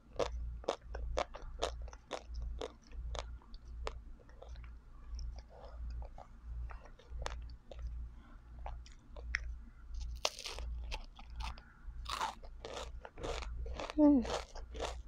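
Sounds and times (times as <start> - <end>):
low hum: 0.0 - 15.0
chewing: 0.2 - 8.0, 8.6 - 15.0
ice cream cone crunching: 8.6 - 15.0.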